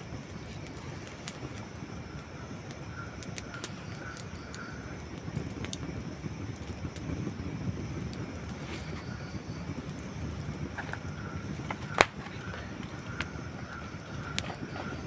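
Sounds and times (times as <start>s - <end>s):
campfire pops and snaps: 0.0s - 15.0s
steady low rumble: 0.0s - 15.0s.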